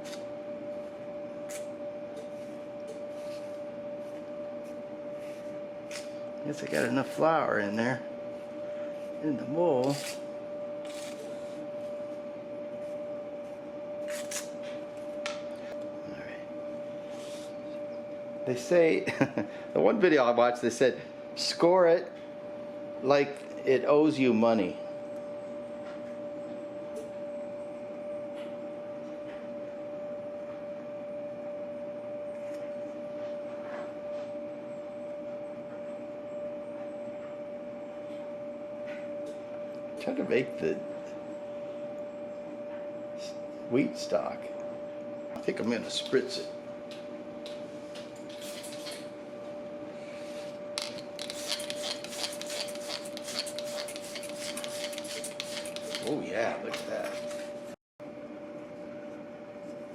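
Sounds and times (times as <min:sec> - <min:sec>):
steady electrical hum: 0:00.0 - 0:59.9
scratchy strokes: 0:09.8 - 0:10.2, 0:10.8 - 0:11.6, 0:48.3 - 0:49.0, 0:50.2 - 0:56.2
spray bottle hissing squirts: 0:51.2 - 0:56.1.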